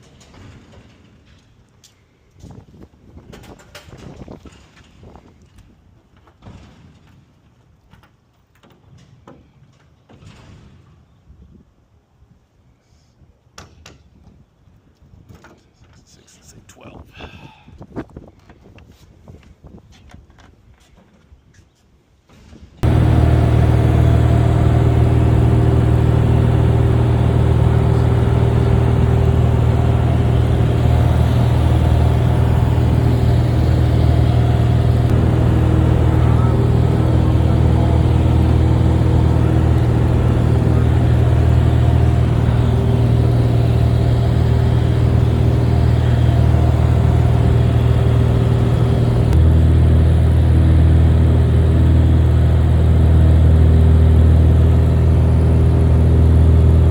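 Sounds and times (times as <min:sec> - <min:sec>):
propeller plane engine drone: 0:22.8 - 0:56.9.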